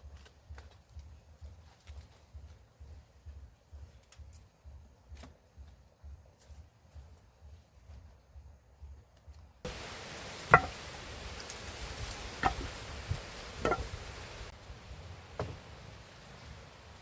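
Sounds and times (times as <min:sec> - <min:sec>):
steady hiss: 0:00.0 - 0:17.0
sharp blows on wood: 0:10.5 - 0:11.0, 0:11.9 - 0:14.5.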